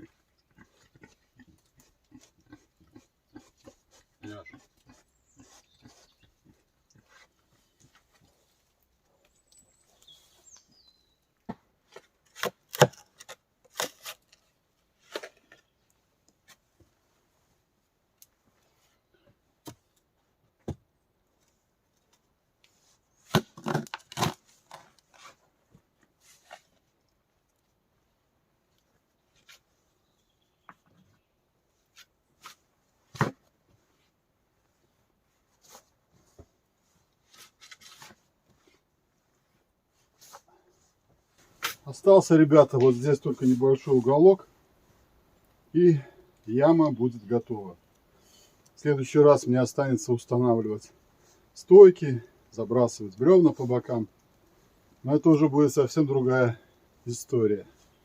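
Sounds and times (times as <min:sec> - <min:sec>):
shovel digging into earth: 0:12.0 - 0:14.4.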